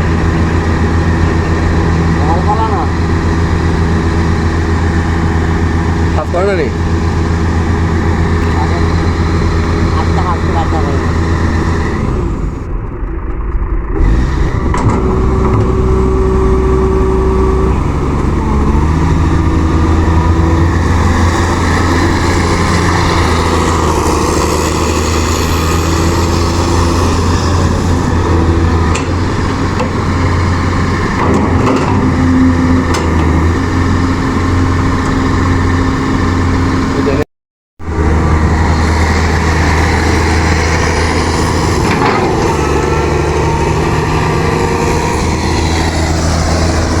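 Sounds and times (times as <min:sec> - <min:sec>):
backhoe engine running: 0:00.0 - 0:37.2, 0:37.8 - 0:47.0
mid-pitched shifting tone: 0:00.0 - 0:47.0.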